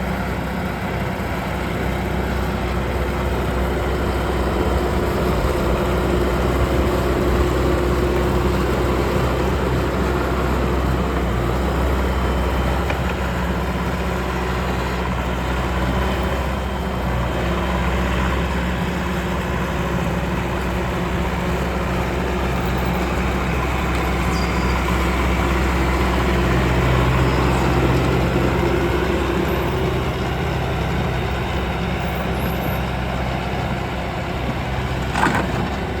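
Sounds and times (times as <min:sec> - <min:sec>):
diesel engine running: 0:00.0 - 0:36.0.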